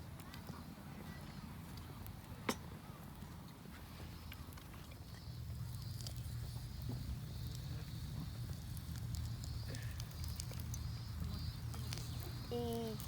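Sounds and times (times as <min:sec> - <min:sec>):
low fire rumble: 0:00.0 - 0:13.0
wood fire crackling: 0:05.2 - 0:13.0.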